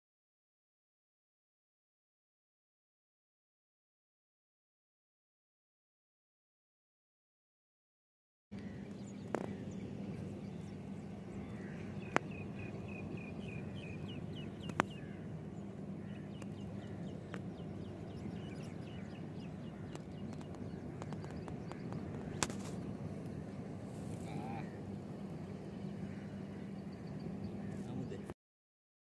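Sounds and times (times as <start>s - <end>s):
steady low hum: 8.5s - 28.4s
sharp clicks: 14.7s - 15.0s.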